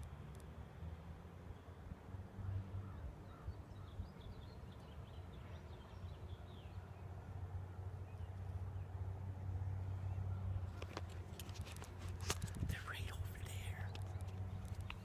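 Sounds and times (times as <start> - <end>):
bird chirping: 2.9 - 7.2.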